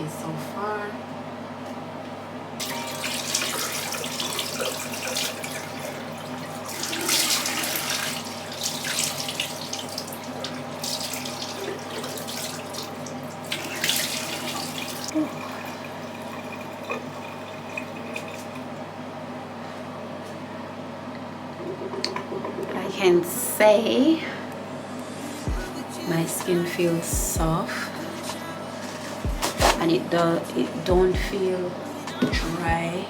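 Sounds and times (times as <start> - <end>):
tap water running into sink: 2.6 - 18.8.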